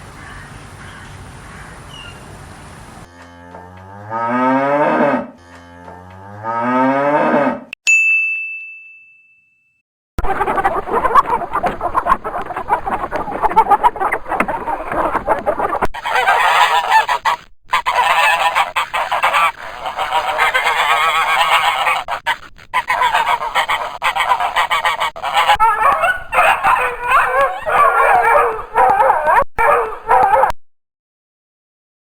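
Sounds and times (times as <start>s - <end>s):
geese honking: 0.0s - 3.7s, 10.2s - 30.5s.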